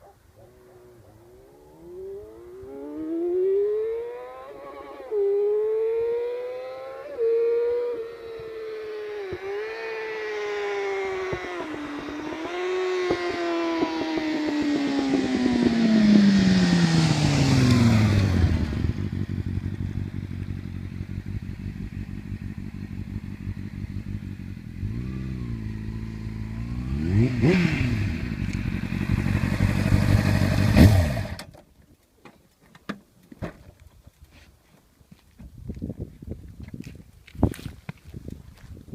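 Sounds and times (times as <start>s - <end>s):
motorcycle engine idling: 14.2s - 26.7s, 28.1s - 31.4s.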